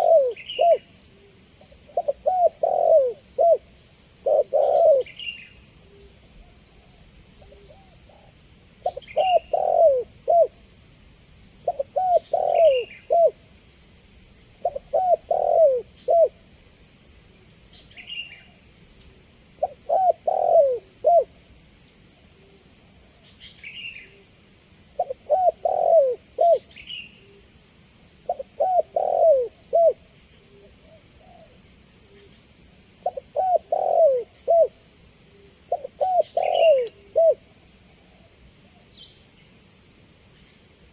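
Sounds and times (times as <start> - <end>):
dove cooing: 0.0 - 0.9, 1.6 - 6.1, 7.4 - 10.6, 11.6 - 13.4, 14.6 - 16.4, 19.6 - 21.3, 25.0 - 27.4, 28.3 - 30.0, 33.0 - 34.8, 35.7 - 37.4
steady high hiss: 0.0 - 40.9.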